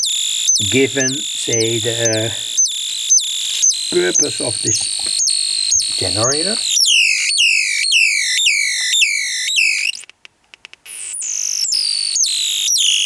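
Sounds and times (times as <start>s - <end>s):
held electronic tone: 0.0s - 7.3s
electronic falling chirps: 0.0s - 10.0s.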